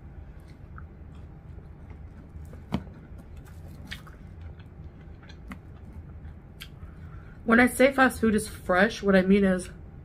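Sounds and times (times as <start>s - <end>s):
low steady hum: 0.0s - 10.0s
person chewing crispy chicken: 0.3s - 7.2s.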